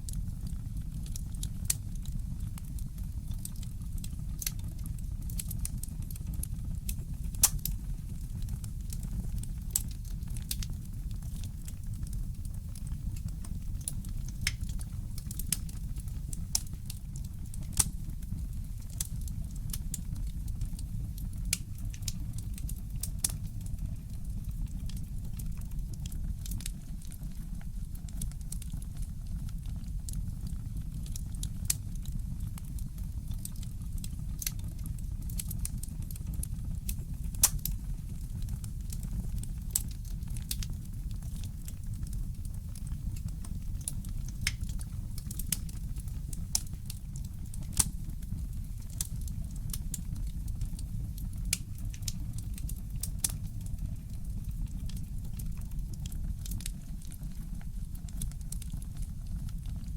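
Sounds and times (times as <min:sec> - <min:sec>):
fire low rumble: 0:00.0 - 0:59.9
burning wood crackling: 0:05.4 - 0:24.0, 0:36.4 - 0:59.5.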